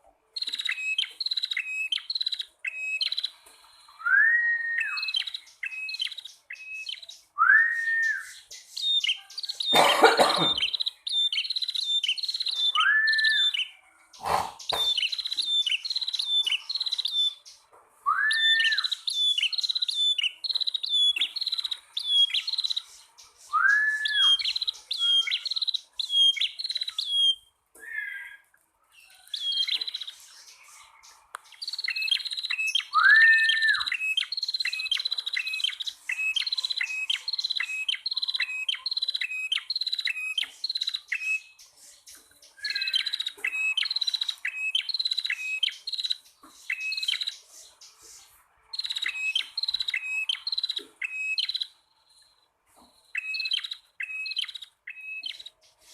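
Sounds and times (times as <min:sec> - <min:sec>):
sharp high bird chirps: 0:00.4 - 0:03.4, 0:04.1 - 0:28.4, 0:31.5 - 0:55.9
lower arched bird whistles: 0:06.6 - 0:08.4, 0:18.1 - 0:19.6, 0:23.5 - 0:25.5, 0:31.9 - 0:41.4.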